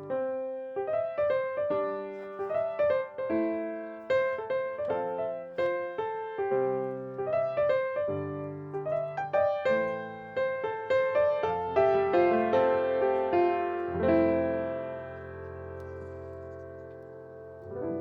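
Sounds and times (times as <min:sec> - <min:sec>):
piano tune: 0:00.0 - 0:18.0.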